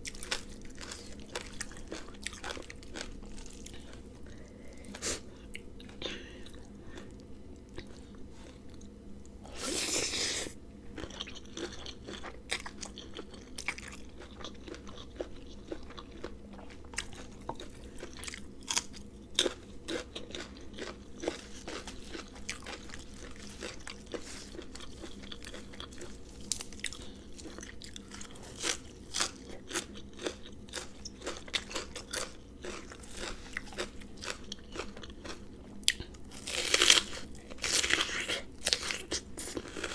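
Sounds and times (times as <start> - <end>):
crunching and chewing food: 0.0 - 39.9.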